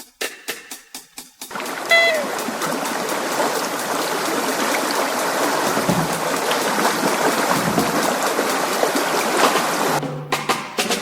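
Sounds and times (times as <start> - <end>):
rushing water with splashes: 1.5 - 10.0.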